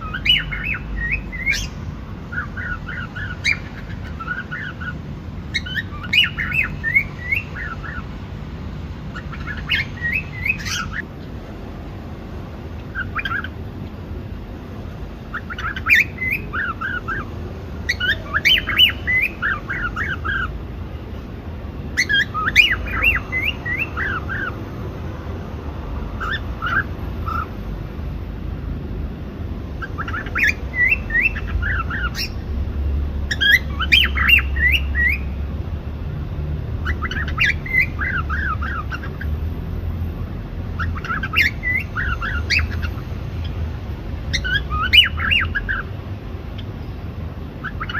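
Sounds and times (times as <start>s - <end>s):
cockatiel chirping: 0.0s - 8.0s, 9.1s - 11.1s, 12.8s - 13.5s, 15.3s - 17.3s, 17.9s - 20.5s, 22.0s - 24.6s, 26.2s - 27.5s, 29.8s - 32.4s, 33.3s - 35.4s, 36.8s - 39.3s, 40.8s - 43.6s, 44.3s - 45.9s, 47.6s - 47.9s.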